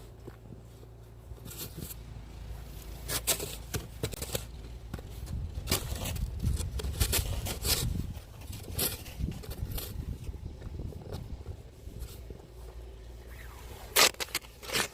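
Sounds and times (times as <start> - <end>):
snow shovel scraping snow: 2.6 - 4.6, 5.3 - 10.2, 11.8 - 14.9.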